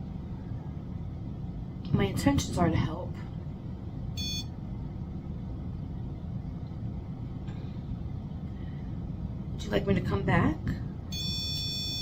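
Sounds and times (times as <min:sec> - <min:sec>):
steady low hum: 0:00.0 - 0:12.0
short high electronic beep: 0:04.2 - 0:04.5.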